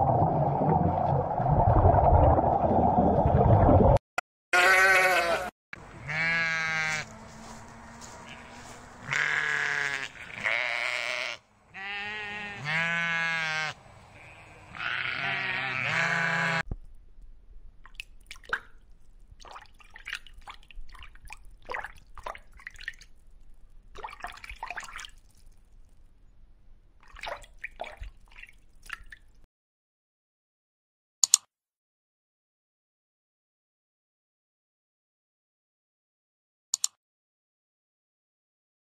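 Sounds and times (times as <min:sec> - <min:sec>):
bubbling in fish tank: 0:00.0 - 0:04.0
sheep bleating: 0:04.6 - 0:16.6.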